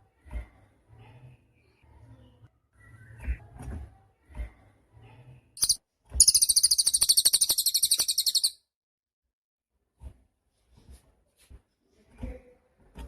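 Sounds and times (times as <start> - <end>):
faint chirps: 5.6 - 8.6
songbird high rapid trill: 5.6 - 8.6.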